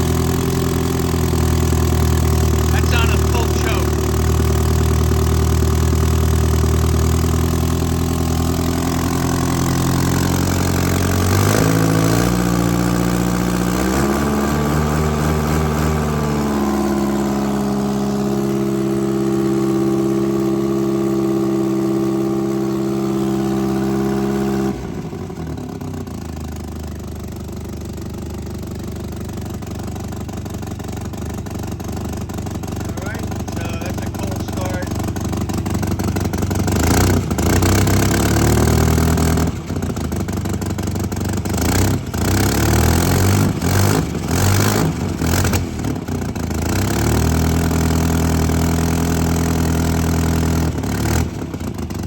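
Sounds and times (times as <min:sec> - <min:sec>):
car engine idling and revving: 0:00.0 - 0:52.0.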